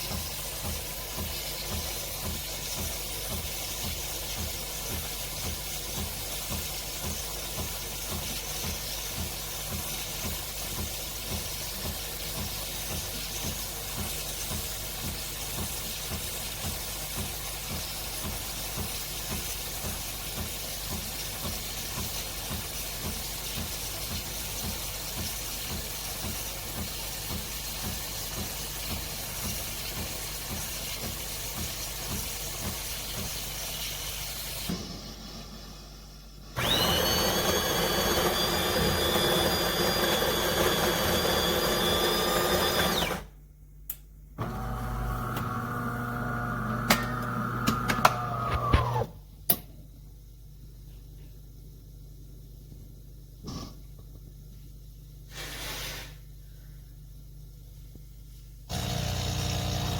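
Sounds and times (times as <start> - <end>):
pump pulsing: 0.0 - 34.9, 36.6 - 43.3, 44.4 - 49.1, 58.7 - 59.9
steam frothing milk hiss: 0.0 - 43.3, 55.3 - 56.3
grinder motor whine: 36.6 - 43.3, 44.4 - 49.1, 58.7 - 59.9
low machine hum: 58.7 - 59.9.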